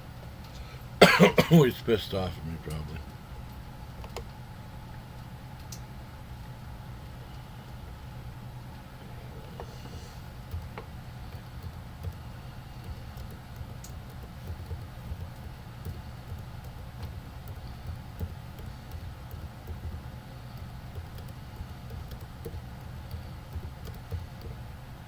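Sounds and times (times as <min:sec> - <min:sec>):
steady low hum: 0:00.0 - 0:25.0
faint small clicks: 0:12.8 - 0:24.6.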